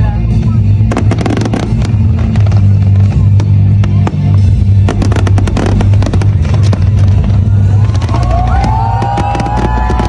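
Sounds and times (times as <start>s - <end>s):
music with deep bass notes: 0.0s - 10.0s
fireworks banging and crackling: 0.3s - 10.0s.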